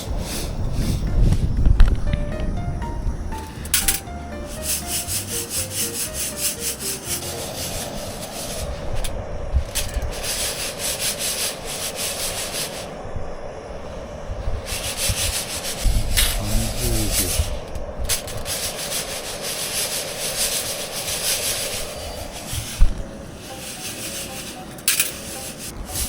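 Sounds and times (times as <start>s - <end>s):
descending run of musical notes: 1.9s - 8.7s
rhythmic scraping and rubbing: 2.4s - 12.7s, 15.0s - 26.0s.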